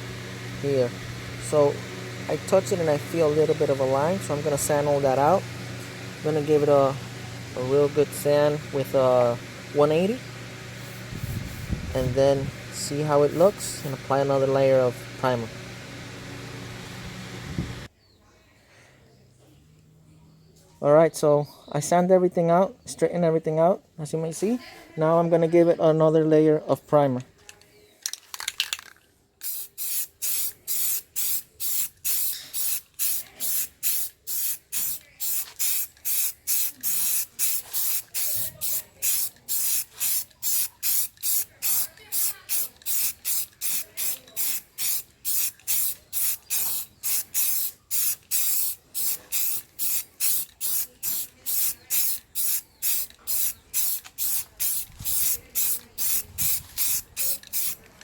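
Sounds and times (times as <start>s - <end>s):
spray paint hissing: 0.6s - 7.0s, 7.6s - 15.0s, 29.4s - 57.9s.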